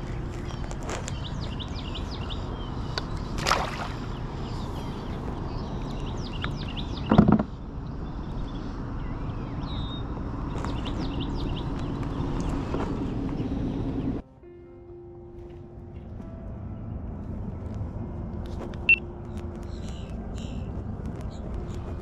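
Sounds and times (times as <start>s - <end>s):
small birds chirping: 0.0s - 14.2s, 18.9s - 22.0s.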